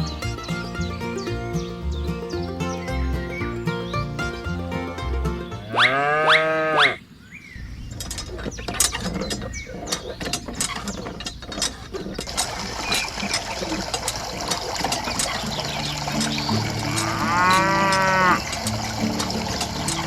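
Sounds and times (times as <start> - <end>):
mechanical clicks and rattles: 7.9 - 20.0.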